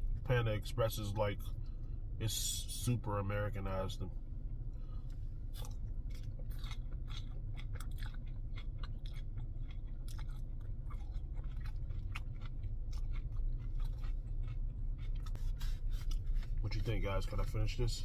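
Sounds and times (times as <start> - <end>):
steady low hum: 0.0 - 18.0
man chewing noodles: 5.0 - 17.6.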